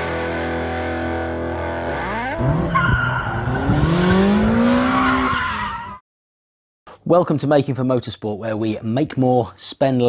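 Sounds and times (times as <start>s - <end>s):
electric guitar chord ringing: 0.0s - 2.7s
car engine revving: 1.5s - 5.7s.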